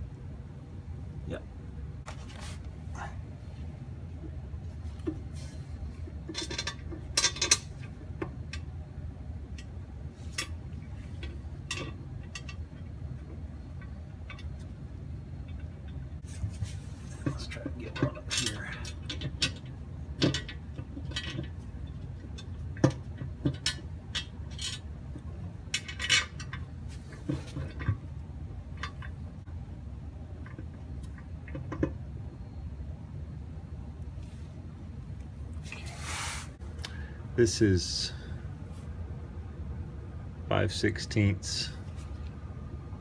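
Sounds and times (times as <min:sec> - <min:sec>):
steady low hum: 0:00.0 - 0:43.0
metal bolts and tools clinking: 0:06.3 - 0:08.6, 0:25.8 - 0:26.6.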